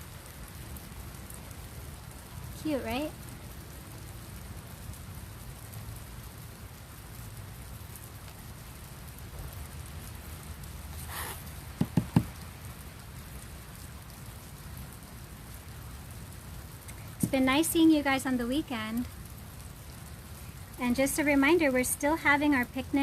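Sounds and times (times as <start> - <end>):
rain falling: 0.0 - 23.0
quick knocks: 11.8 - 12.4.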